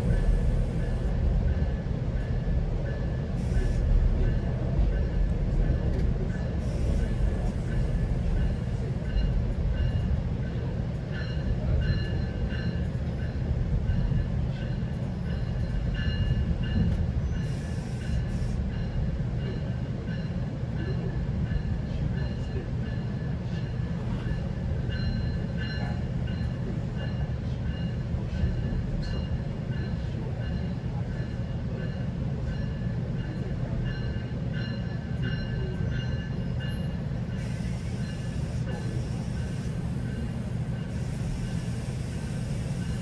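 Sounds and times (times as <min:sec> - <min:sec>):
passenger train rumbling: 0:00.0 - 0:43.0.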